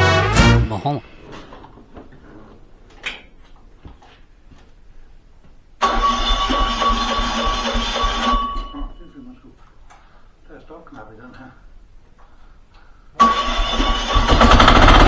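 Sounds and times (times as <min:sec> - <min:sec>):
starter motor cranking engine: 0:13.3 - 0:15.0.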